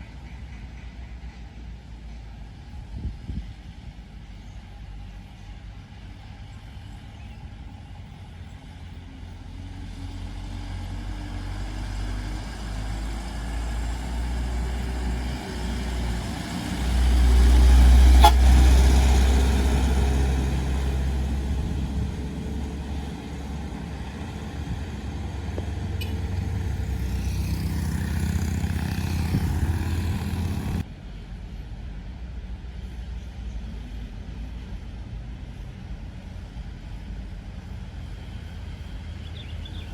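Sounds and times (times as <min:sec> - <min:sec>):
road noise: 0:00.0 - 0:39.9
heavy truck driving by: 0:08.6 - 0:30.9.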